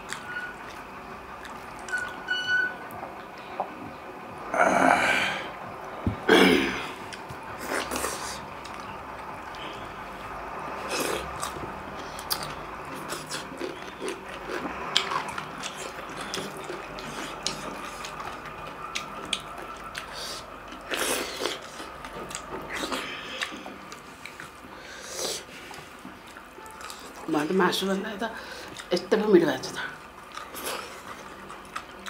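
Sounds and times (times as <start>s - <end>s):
wet chewing and lip smacks: 0.0s - 3.8s, 7.1s - 9.7s, 11.0s - 27.3s, 30.0s - 32.0s.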